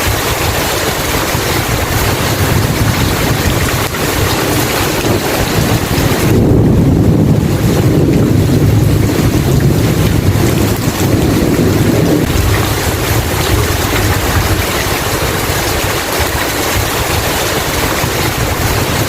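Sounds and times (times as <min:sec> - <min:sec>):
heavy rain hissing: 0:00.0 - 0:19.0
low rumble of thunder: 0:00.0 - 0:19.0.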